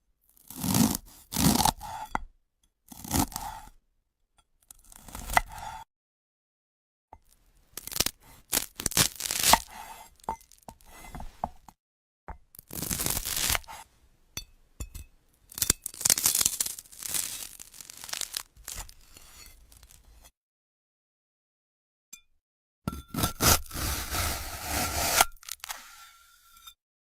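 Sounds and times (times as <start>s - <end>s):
blade slicing crisp fruit: 0.4s - 2.1s, 2.9s - 3.6s, 7.8s - 10.2s, 12.7s - 13.9s, 22.9s - 26.0s.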